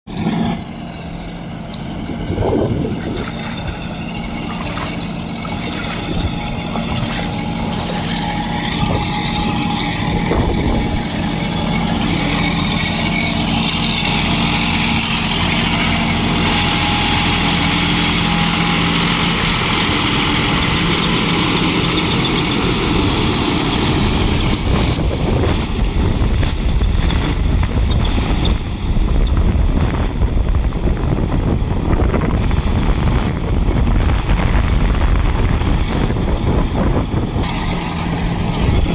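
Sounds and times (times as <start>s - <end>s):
tractor engine running: 0.0s - 38.9s
water rushing and splashing: 0.1s - 31.0s
wind on microphone: 1.8s - 12.8s, 13.4s - 38.9s.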